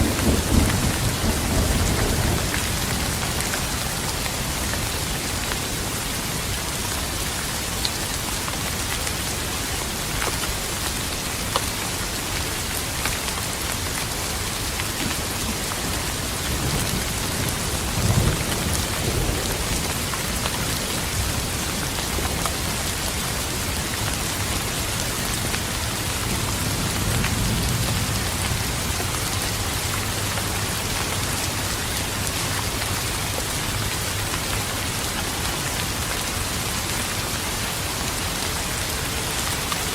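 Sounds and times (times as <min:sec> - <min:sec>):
distant thunder rolls: 0:00.0 - 0:03.5
rain pattering: 0:00.0 - 0:39.9.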